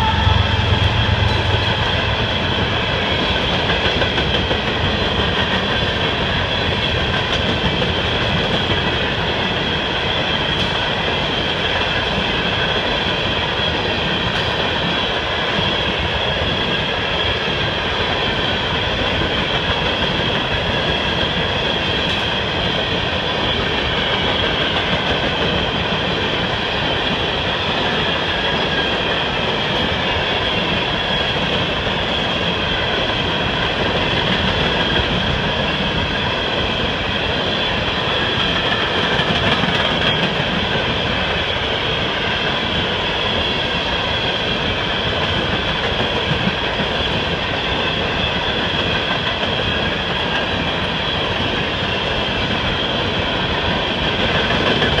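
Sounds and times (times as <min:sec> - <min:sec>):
high-pitched whine: 0:00.0 - 0:03.7
train wheels rumbling on rails: 0:00.0 - 0:55.0.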